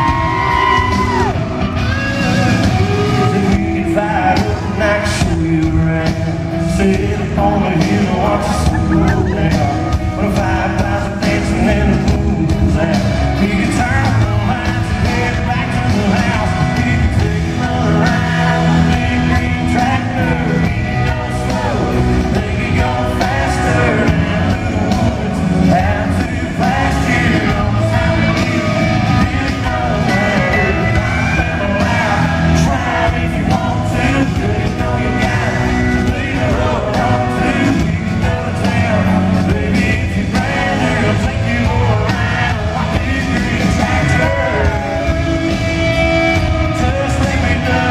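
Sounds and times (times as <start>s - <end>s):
crowd yelling: 0.0s - 5.3s, 14.1s - 47.9s
country band playing live: 0.0s - 47.9s
man singing: 0.0s - 47.9s.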